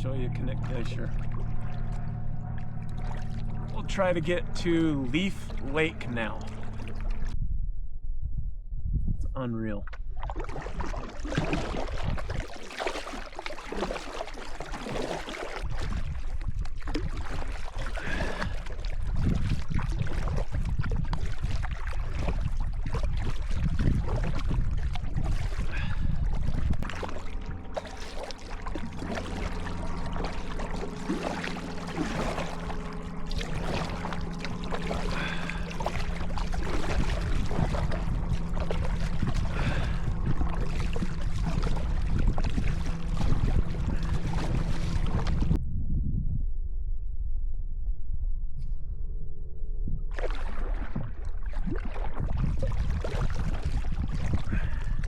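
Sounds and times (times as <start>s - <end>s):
paddle strokes splashing: 0.0s - 7.4s, 10.1s - 45.6s, 50.1s - 55.0s
steady low hum: 0.0s - 55.0s
water dripping off paddle: 26.7s - 45.4s.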